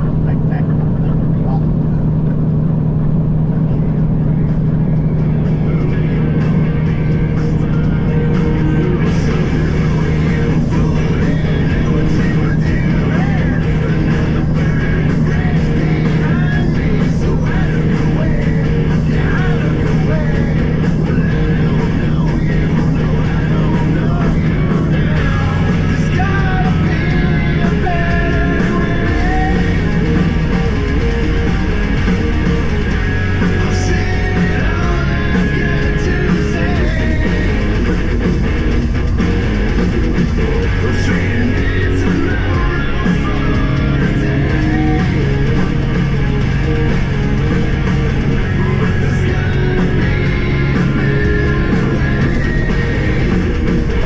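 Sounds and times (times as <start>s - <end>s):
electric guitar: 0.0s - 54.0s
person singing: 5.6s - 31.8s, 33.0s - 37.8s, 40.4s - 45.9s, 48.3s - 54.0s.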